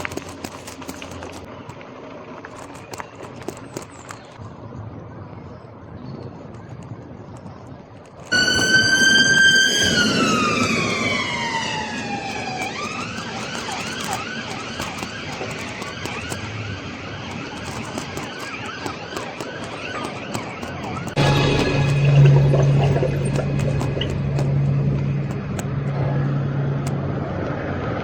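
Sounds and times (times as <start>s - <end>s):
emergency vehicle siren: 8.3s - 15.7s, 16.3s - 27.2s.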